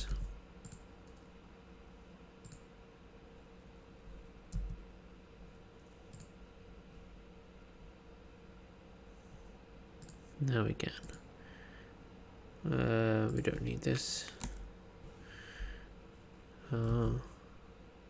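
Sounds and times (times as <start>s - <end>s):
computer mouse clicking: 0.0s - 1.3s, 2.4s - 2.7s, 6.1s - 6.4s, 10.0s - 10.2s, 14.3s - 14.6s
faint electrical hum: 0.0s - 18.0s.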